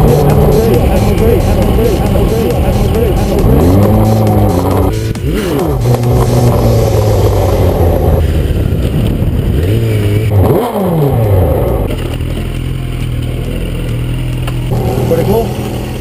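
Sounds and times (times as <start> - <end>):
motorcycle engine revving and idling: 0.0 - 16.0.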